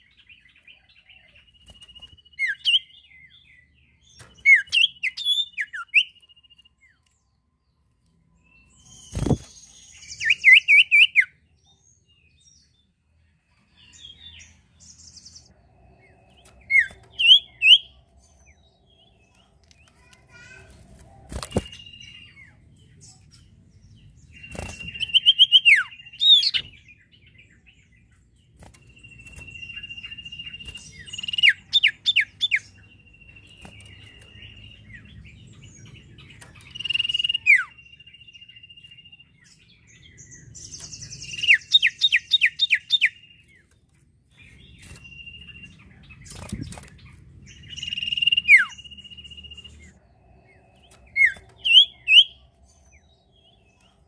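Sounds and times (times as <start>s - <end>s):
songbird singing whistled phrases: 0.1s - 3.7s, 4.4s - 7.0s, 8.4s - 11.4s, 16.7s - 18.0s, 24.4s - 26.8s, 28.9s - 35.2s, 36.6s - 39.4s, 47.5s - 50.0s, 50.9s - 52.4s.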